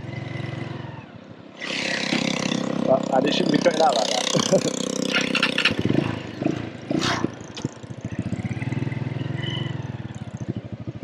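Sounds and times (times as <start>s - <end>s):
motorbike engine idling: 2.2s - 11.0s.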